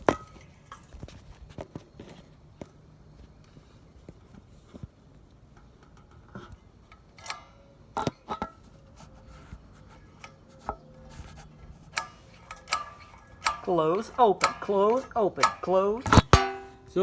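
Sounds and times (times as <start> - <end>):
engine linkage clicks and knocks: 5.6 - 8.6, 11.7 - 16.8.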